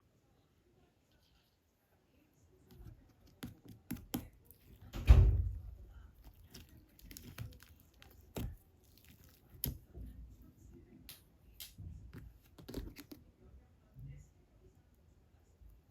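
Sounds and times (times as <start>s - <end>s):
slime clicks and squishes: 6.2s - 9.8s.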